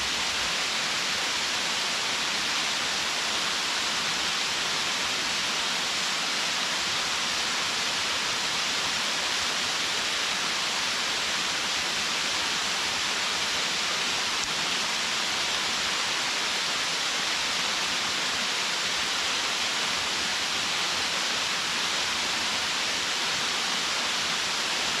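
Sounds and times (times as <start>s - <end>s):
waterfall rushing onto rocks: 0.0s - 25.0s.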